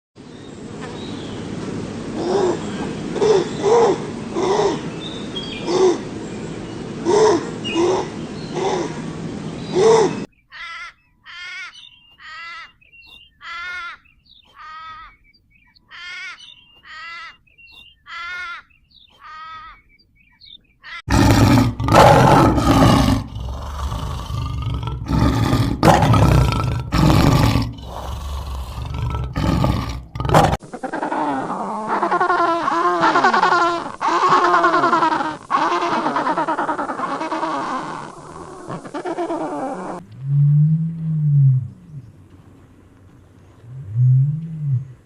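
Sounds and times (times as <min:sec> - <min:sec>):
big cat roaring and growling: 0:21.1 - 0:30.6.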